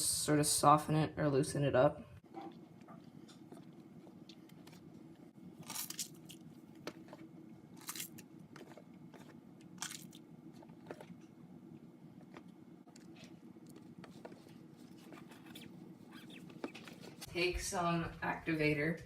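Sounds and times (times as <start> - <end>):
slime squelching: 2.2 - 11.4, 12.2 - 17.3.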